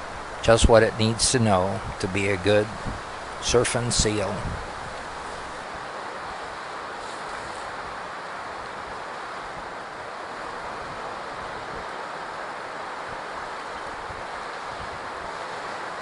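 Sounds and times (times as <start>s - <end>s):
ocean surf breaking: 0.0s - 16.0s
wind: 0.0s - 16.0s.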